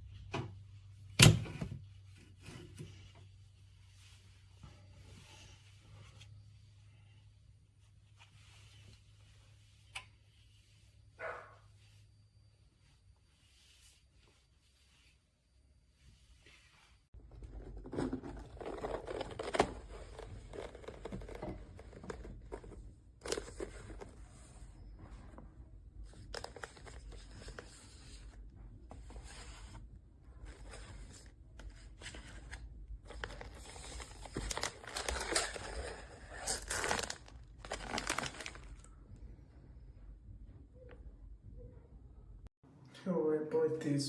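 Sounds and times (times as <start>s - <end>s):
plastic packaging crinkling: 33.1s - 38.9s.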